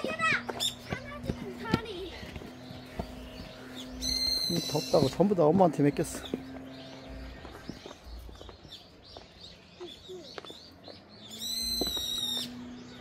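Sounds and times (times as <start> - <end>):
birds chirping and singing: 0.0 - 13.0
loud high bird call: 3.3 - 5.2, 11.3 - 13.0.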